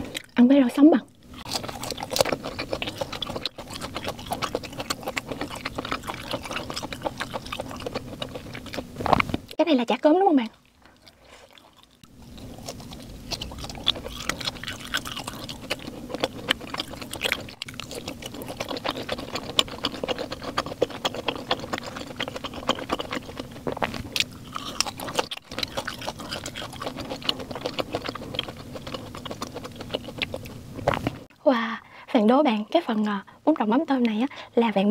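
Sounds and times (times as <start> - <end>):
chewing mouth clicks and smacks: 10.8 - 31.2.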